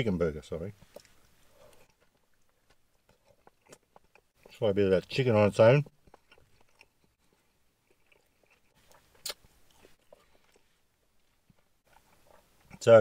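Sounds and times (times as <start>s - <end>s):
chewing with wet mouth clicks: 0.8s - 4.6s, 5.8s - 12.8s.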